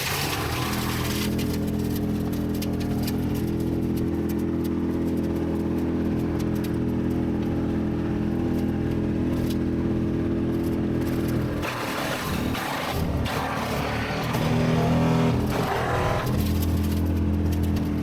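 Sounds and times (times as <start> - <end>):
machine engine running: 0.0 - 18.0.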